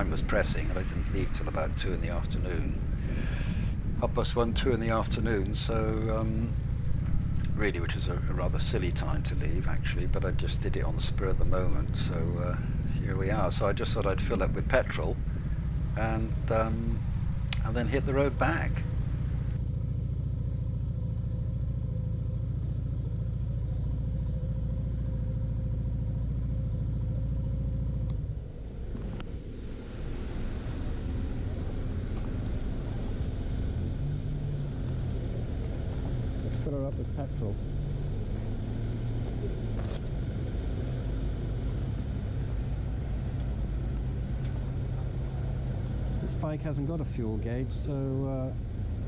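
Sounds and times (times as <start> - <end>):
motorcycle engine idling: 0.0 - 29.0, 40.7 - 46.6.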